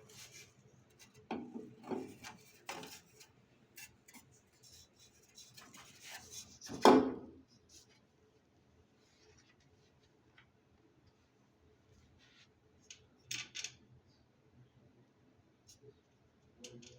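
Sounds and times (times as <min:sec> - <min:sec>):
hard objects knocking and scraping: 0:01.3 - 0:03.0.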